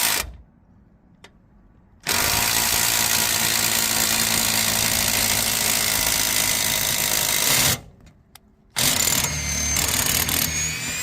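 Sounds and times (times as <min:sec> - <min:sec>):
power drill running: 0:08.8 - 0:11.0.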